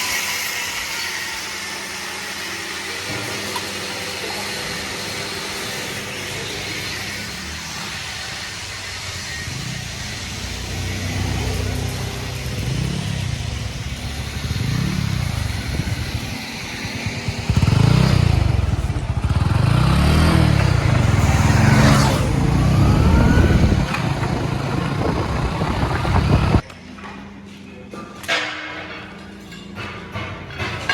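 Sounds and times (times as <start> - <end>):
engine revving: 9.2 - 26.6.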